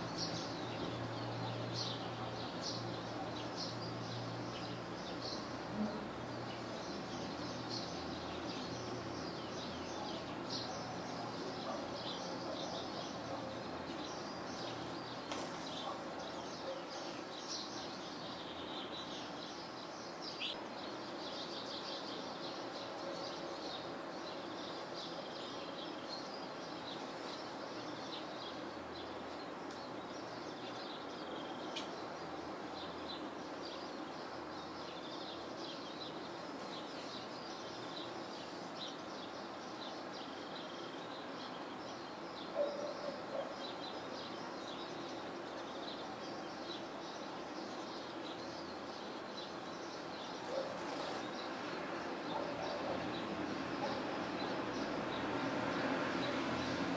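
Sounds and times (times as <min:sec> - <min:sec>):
background hiss: 0:00.0 - 0:56.9
songbirds chirping and twittering: 0:00.0 - 0:56.9.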